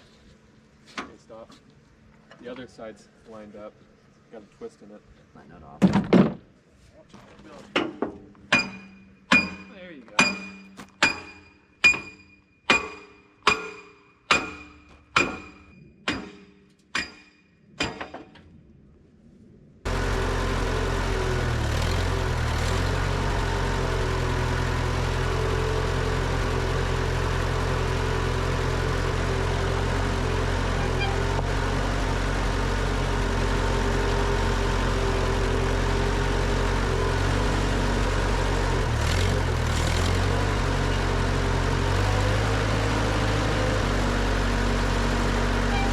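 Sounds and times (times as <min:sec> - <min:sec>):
hammer striking metal: 0:07.8 - 0:18.3
tractor engine running: 0:19.9 - 0:45.9.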